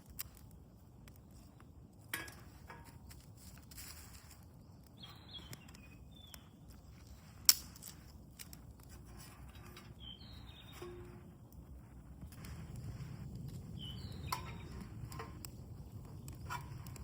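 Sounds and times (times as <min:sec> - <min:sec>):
faint outdoor clicks and rustles: 0:00.0 - 0:17.0
sharp crack: 0:07.4 - 0:08.6.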